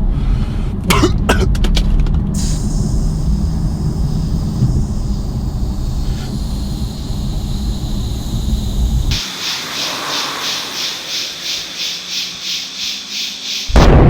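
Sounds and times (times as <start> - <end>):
firework hissing: 2.4 - 13.8.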